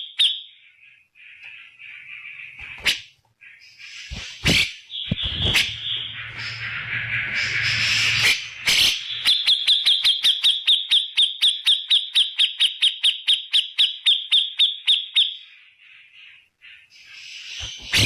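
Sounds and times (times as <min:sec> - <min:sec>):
harsh noisy bird call: 0:00.0 - 0:11.0, 0:15.4 - 0:18.0.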